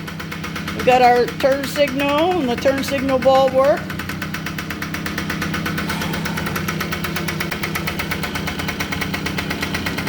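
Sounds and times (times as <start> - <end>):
two-stroke engine idling: 0.0 - 10.0.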